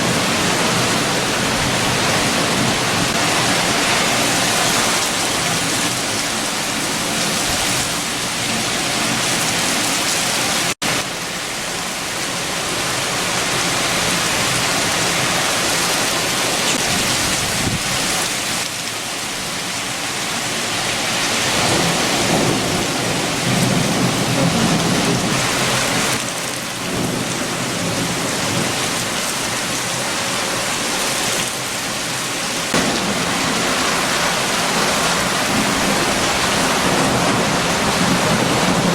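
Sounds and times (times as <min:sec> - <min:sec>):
heavy rain: 0:00.0 - 0:38.9
strong wind: 0:00.0 - 0:38.9.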